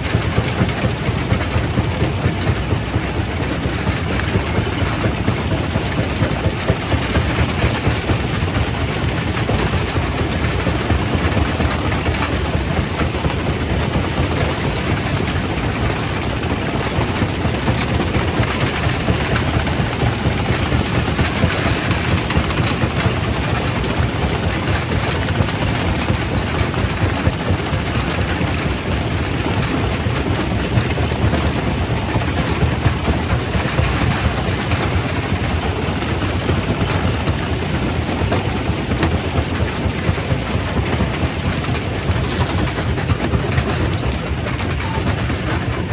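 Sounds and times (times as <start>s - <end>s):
rock crusher rumbling: 0.0s - 45.9s.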